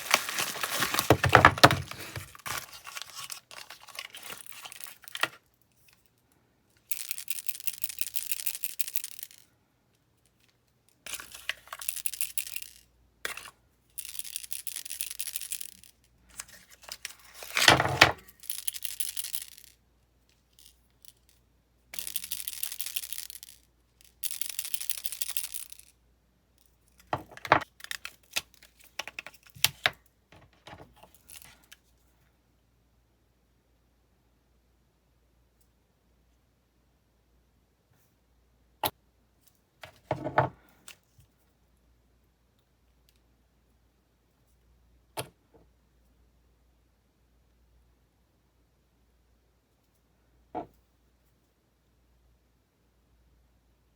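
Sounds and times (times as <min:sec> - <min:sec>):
crinkling rustle: 0:00.0 - 0:05.4.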